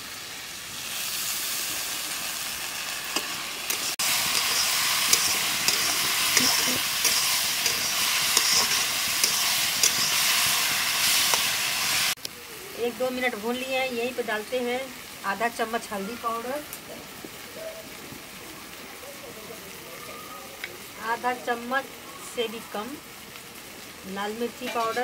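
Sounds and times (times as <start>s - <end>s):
paste frying in hot oil: 0.0s - 25.0s
spatula scraping pan: 3.2s - 12.2s.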